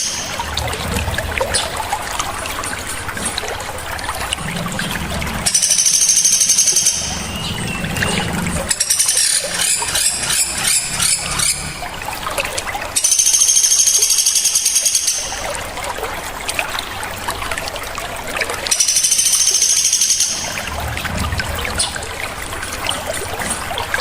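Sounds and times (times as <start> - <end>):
shrill high bird trills: 8.7 - 11.6, 18.7 - 20.6.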